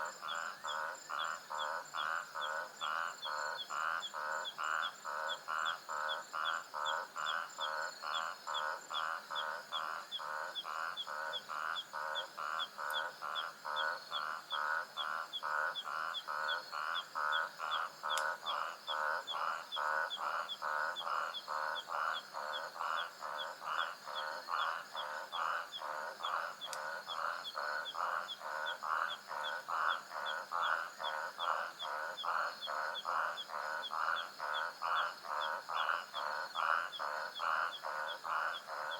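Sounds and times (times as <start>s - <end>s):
repeated animal call: 0.0s - 38.9s.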